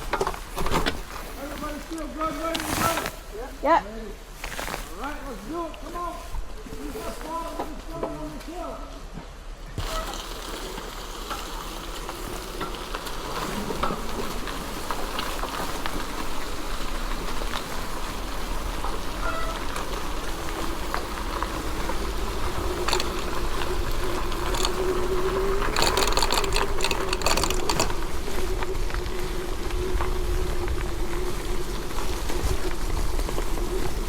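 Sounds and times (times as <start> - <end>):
bike tyre and rattle noise: 0.0 - 3.5, 4.2 - 34.0
electric motor whine: 20.1 - 34.0
clattering: 22.4 - 28.0.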